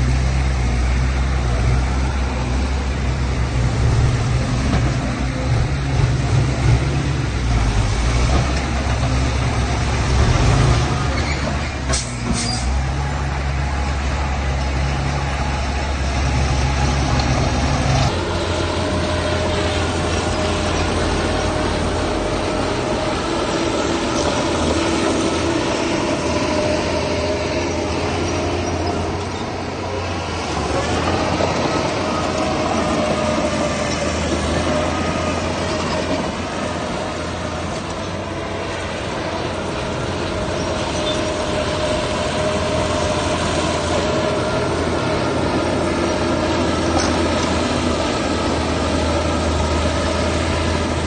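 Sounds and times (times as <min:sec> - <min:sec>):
diesel engine running under load: 0:00.0 - 0:51.0.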